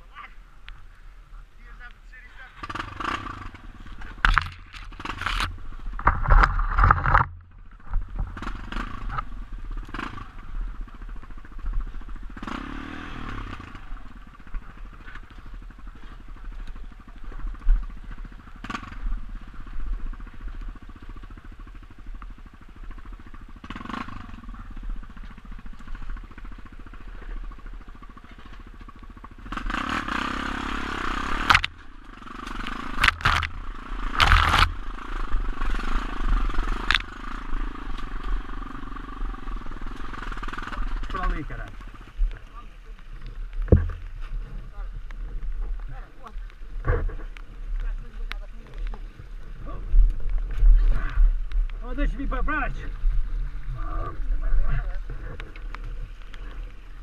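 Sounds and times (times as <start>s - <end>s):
motorcycle engine revving: 1.6s - 57.0s
knocks and scrapes: 3.9s - 8.5s, 43.6s - 44.7s, 46.8s - 47.4s.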